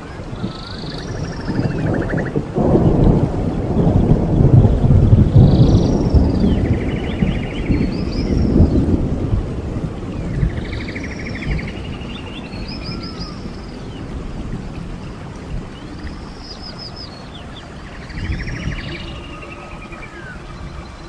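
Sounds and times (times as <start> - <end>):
low thunder rumble: 0.0 - 21.0.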